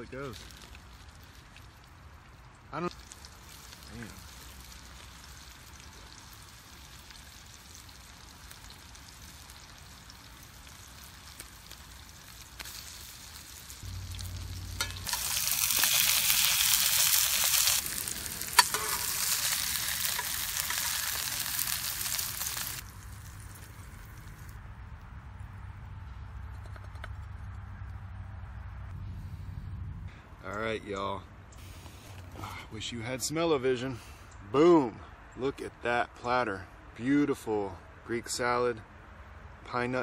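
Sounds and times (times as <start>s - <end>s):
fish frying in oil: 0.4s - 24.5s.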